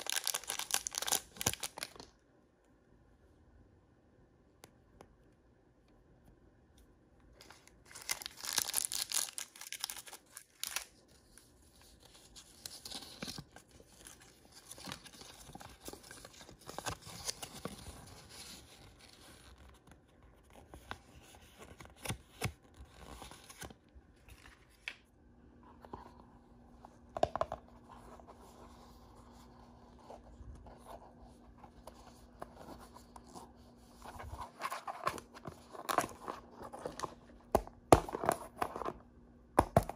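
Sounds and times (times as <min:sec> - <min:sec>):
plastic packaging tearing: 0:00.0 - 0:02.0, 0:07.9 - 0:10.9
packaging rustling: 0:00.0 - 0:02.1, 0:07.4 - 0:11.0.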